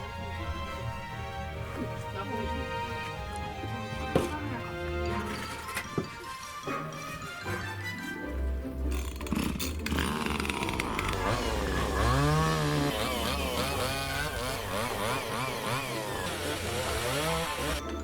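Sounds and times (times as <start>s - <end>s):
small engine revving: 9.3s - 17.8s.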